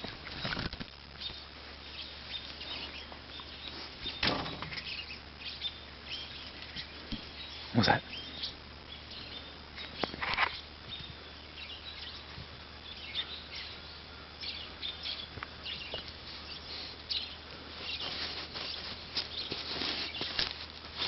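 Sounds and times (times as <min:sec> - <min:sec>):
puppy paws scraping ground: 0:02.0 - 0:07.7, 0:15.4 - 0:21.0.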